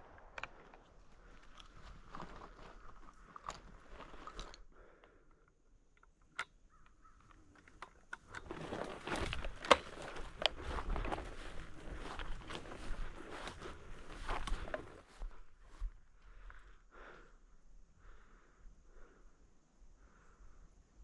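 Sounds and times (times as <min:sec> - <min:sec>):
footsteps through dry grass: 0:00.0 - 0:04.5, 0:08.4 - 0:16.8.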